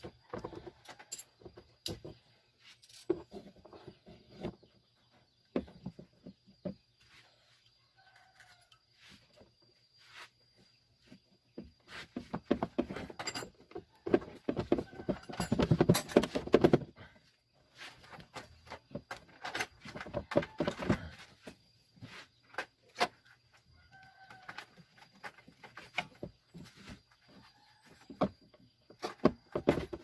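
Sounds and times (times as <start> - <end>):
clattering clicks and knocks: 12.2 - 17.0.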